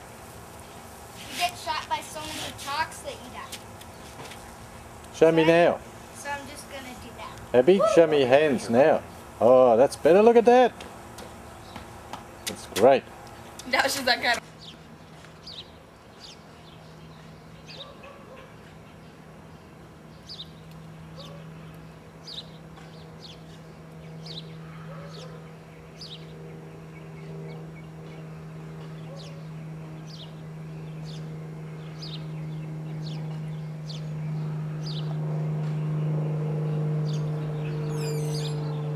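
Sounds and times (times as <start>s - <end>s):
low droning hum: 0.0s - 38.9s
bird chirping: 11.2s - 38.9s.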